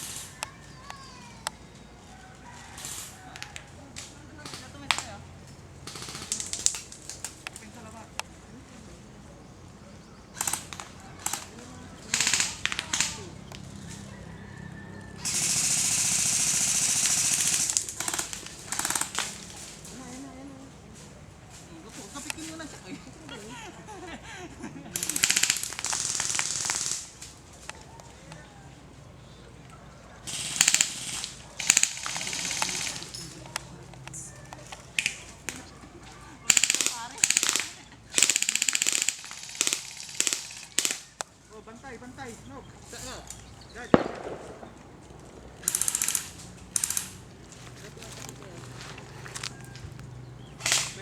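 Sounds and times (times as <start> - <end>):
airsoft guns firing bursts: 0.0 - 0.6, 4.4 - 5.2, 5.8 - 7.7, 10.3 - 14.0, 15.2 - 19.8, 25.0 - 27.4, 30.2 - 33.6, 36.4 - 41.4, 43.8 - 49.5, 50.5 - 51.0
airsoft gun single shots: 43.9 - 47.2.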